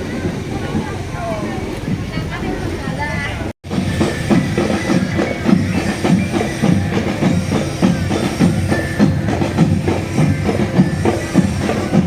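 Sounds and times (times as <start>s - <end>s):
faint melodic tones: 1.5s - 12.0s
marching drums beating: 3.6s - 12.0s.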